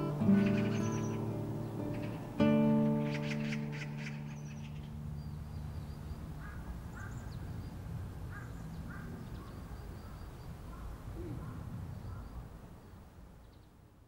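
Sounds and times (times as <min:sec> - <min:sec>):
held music tone: 0:00.0 - 0:05.0
birds calling: 0:00.0 - 0:13.8.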